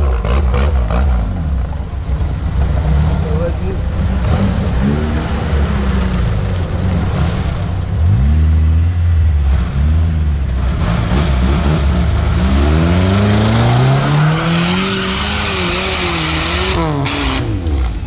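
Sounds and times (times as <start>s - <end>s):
vehicle engine revving: 0.0s - 18.0s.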